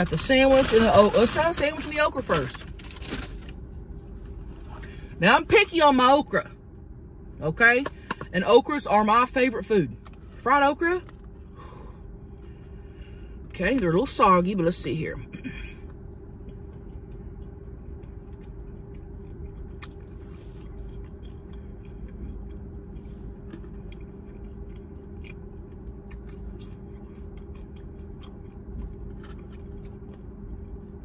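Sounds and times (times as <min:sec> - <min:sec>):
low hum: 0:00.0 - 0:31.0
person chewing: 0:15.5 - 0:31.0.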